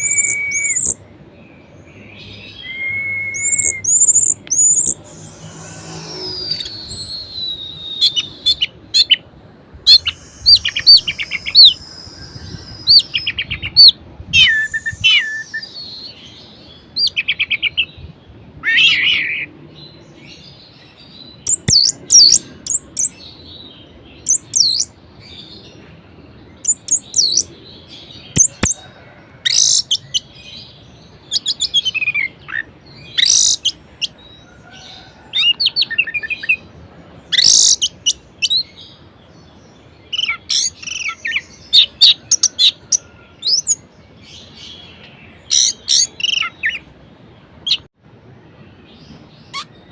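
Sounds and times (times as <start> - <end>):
thrush singing: 2.5 - 8.9.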